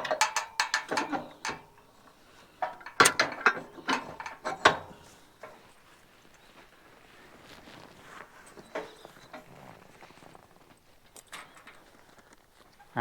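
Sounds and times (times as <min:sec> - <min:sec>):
metal harness hardware clinking: 0:00.0 - 0:01.9, 0:02.6 - 0:05.6.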